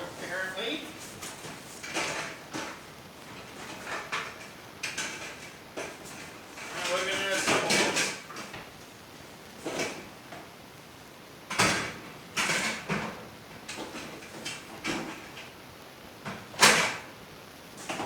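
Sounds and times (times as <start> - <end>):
scrapes and knocks of parts: 1.2 - 8.6.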